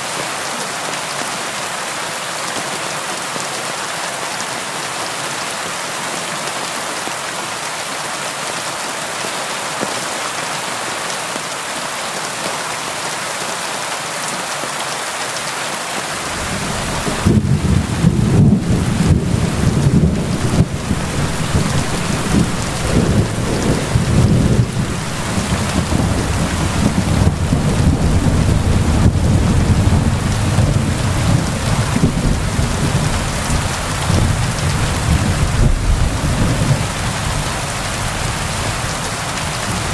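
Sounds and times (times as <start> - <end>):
steady rain hiss: 0.0 - 39.9
deep rumble of thunder: 16.2 - 39.9.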